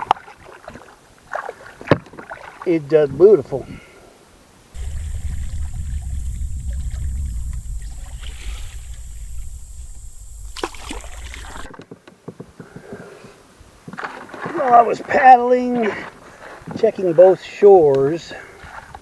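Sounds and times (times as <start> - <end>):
canoe paddling: 0.0 - 2.6, 4.8 - 11.8, 13.9 - 16.8
wind buffeting microphone: 4.8 - 11.7.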